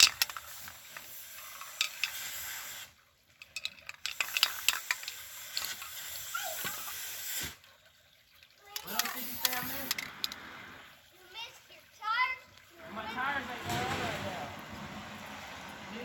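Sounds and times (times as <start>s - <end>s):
spray can hissing: 0.0s - 3.0s, 4.0s - 7.6s, 8.8s - 10.0s.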